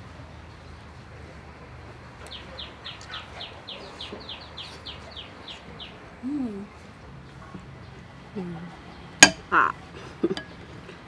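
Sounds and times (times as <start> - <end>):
person saying mm: 6.2 - 6.7.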